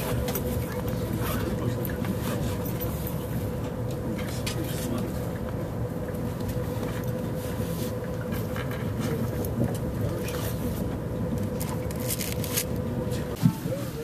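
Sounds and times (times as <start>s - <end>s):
train cabin rumble: 0.0s - 14.0s.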